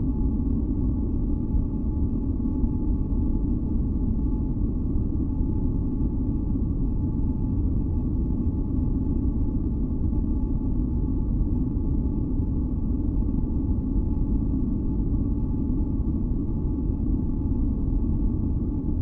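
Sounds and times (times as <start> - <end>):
faint steady hum tones: 0.0 - 19.0.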